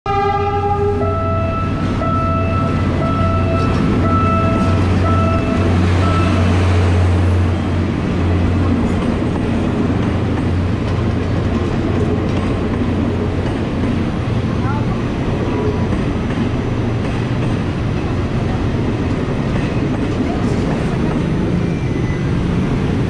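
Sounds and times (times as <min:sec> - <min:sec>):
train horn: 0:00.1 - 0:06.6
train rumbling on rails: 0:00.1 - 0:23.0.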